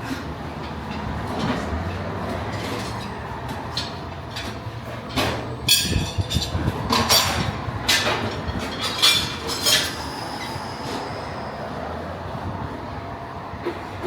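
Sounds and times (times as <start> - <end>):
metallic clanks and rattles: 0.6 - 10.0.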